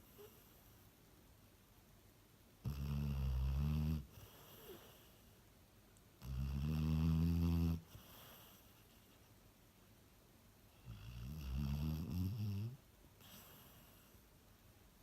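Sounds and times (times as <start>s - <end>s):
dog snoring: 2.6s - 5.2s, 6.2s - 8.9s, 10.8s - 14.2s.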